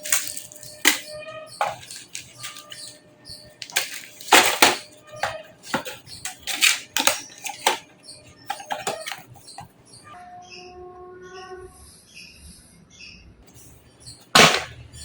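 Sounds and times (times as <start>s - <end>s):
computer hardware clicks and clacks: 0.0s - 3.0s, 3.6s - 9.7s.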